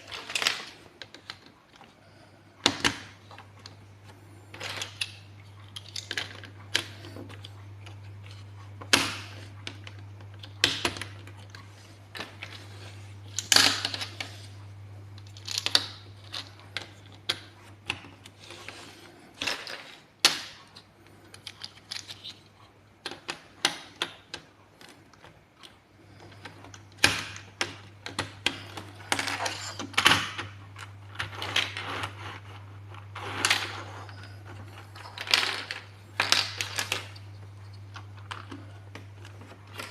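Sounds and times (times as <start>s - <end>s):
plastic blocks clicking and rattling: 0.0s - 2.0s, 2.6s - 3.8s, 4.5s - 14.6s, 15.2s - 39.9s
plastic blocks snapping: 15.2s - 18.3s, 35.0s - 37.3s.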